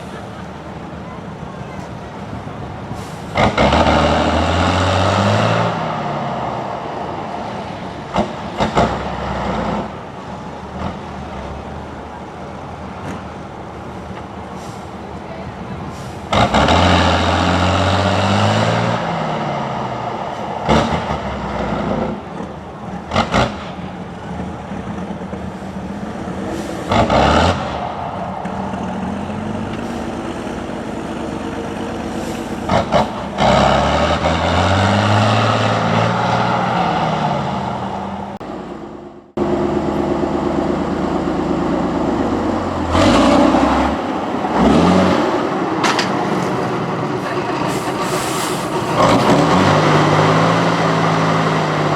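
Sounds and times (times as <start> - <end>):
truck engines revving: 0.0 - 51.9
air hiss bursts: 47.6 - 48.9.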